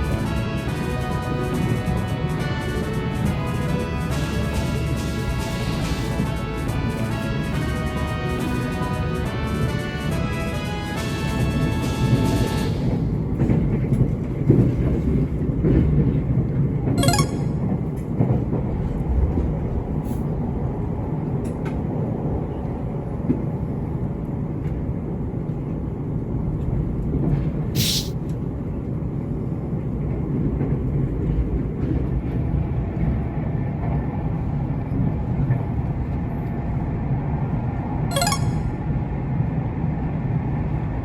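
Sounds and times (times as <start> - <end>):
electric train rumbling: 0.0 - 16.8
brief hiss: 27.8 - 28.1.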